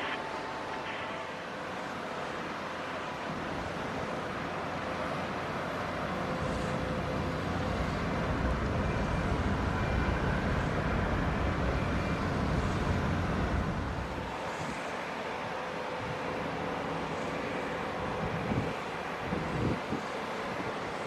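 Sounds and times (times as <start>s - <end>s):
jet engines rumbling: 0.0s - 15.5s
faint jet engine whine: 0.0s - 21.0s.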